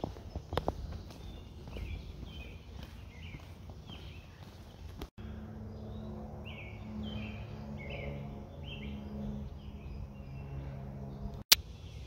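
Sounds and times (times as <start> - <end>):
birds chirping downward calls: 0.0 - 5.1, 5.7 - 12.0
steady low hum: 5.2 - 12.0.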